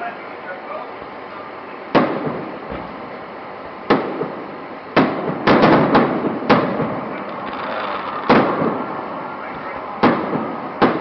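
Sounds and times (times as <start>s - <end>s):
firework shells bursting: 3.8s - 9.1s.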